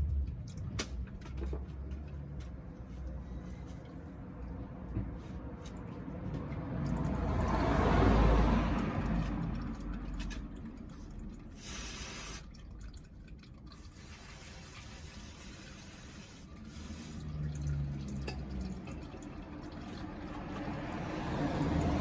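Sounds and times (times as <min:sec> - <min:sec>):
oil trickling into drain pan: 0:05.7 - 0:22.0.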